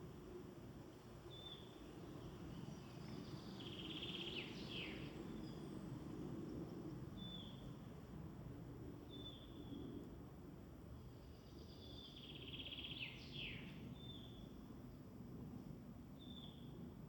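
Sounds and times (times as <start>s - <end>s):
faint woodland birdsong: 1.2s - 7.8s, 9.0s - 10.0s, 10.8s - 15.0s, 16.2s - 16.8s.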